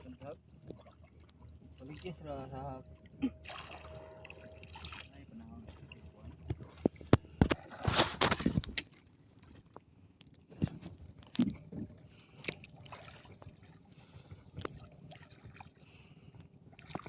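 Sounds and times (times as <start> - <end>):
water splashing: 0.0 - 9.7, 12.1 - 13.8.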